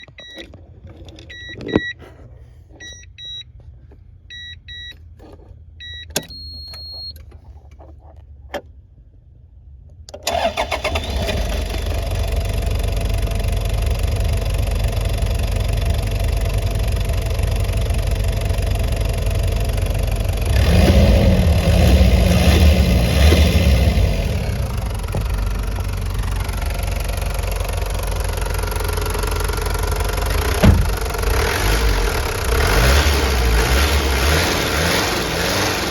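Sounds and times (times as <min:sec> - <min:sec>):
dashboard beeps and clicks: 0:00.0 - 0:02.0, 0:02.7 - 0:03.6, 0:04.3 - 0:05.2, 0:05.8 - 0:07.4
diesel engine starting and idling: 0:10.0 - 0:35.9.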